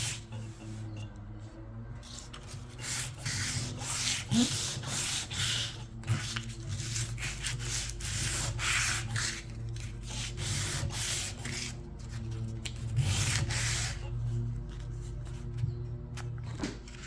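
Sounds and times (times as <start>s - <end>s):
sandpaper rubbing back and forth: 2.3s - 14.4s.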